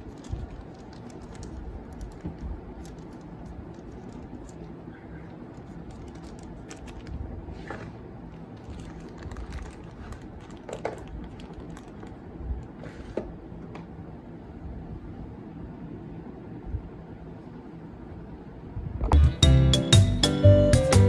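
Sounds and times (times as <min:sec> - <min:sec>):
small hard items clicking: 0:00.0 - 0:04.8
steady low hum: 0:00.0 - 0:19.8.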